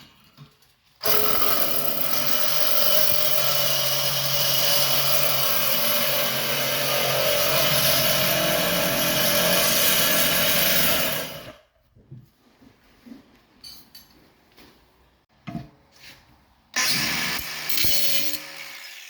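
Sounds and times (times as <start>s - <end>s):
power tool running: 1.0s - 11.5s.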